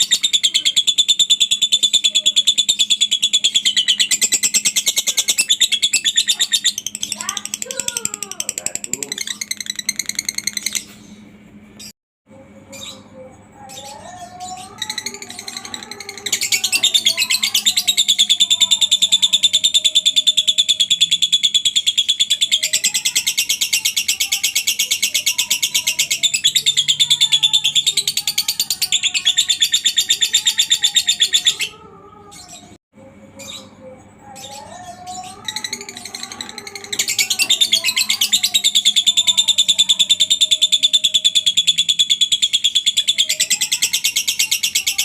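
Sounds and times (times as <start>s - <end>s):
bird rapid chattering trill: 0.0s - 11.2s, 13.8s - 31.8s, 34.4s - 45.0s
bird chirps: 33.4s - 45.0s.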